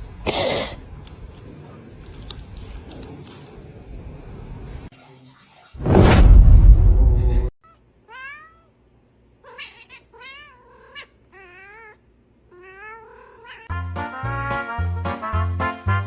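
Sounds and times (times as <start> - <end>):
cat meowing: 7.6 - 8.7, 9.4 - 13.7.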